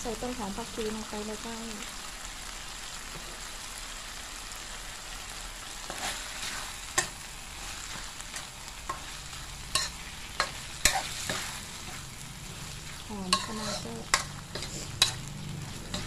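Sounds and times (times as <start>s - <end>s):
meat sizzling in a wok: 0.0s - 16.0s
spatula scraping a wok: 5.6s - 16.0s.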